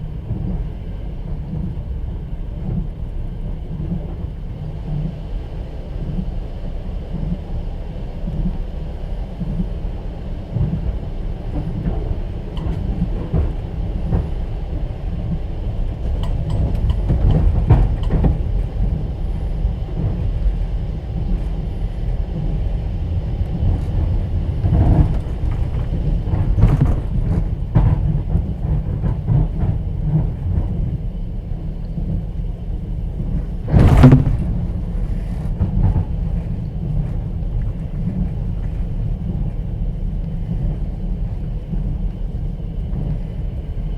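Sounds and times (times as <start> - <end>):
train wheels rumbling: 0.0 - 43.9
wheels knocking over rail joints: 33.6 - 36.0
loud bang: 33.7 - 34.9.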